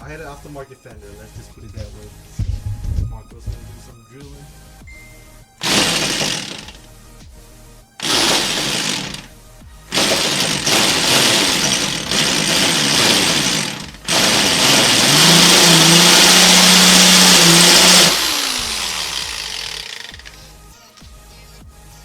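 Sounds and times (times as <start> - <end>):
power drill boring through sheet metal: 5.6 - 7.0, 8.0 - 20.5.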